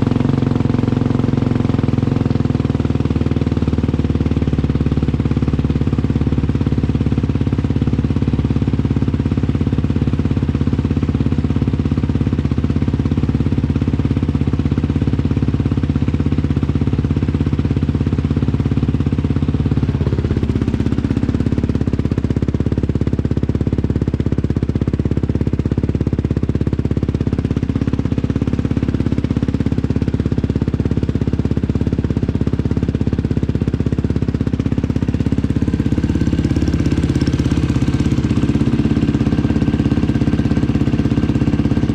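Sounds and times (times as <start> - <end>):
engine idling: 0.0 - 41.9.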